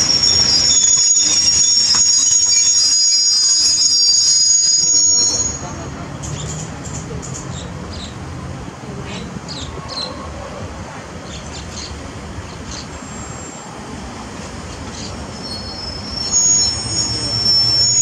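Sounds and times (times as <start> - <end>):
brief high squeaks: 0.0 - 5.7, 14.9 - 18.0
high-pitched wheel squeal: 0.0 - 5.9, 14.9 - 18.0
train coaches rumbling: 0.0 - 18.0.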